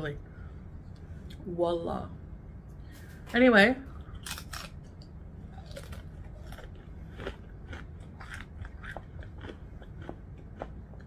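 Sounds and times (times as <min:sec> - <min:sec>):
person chewing crunchy food: 0:04.0 - 0:11.0.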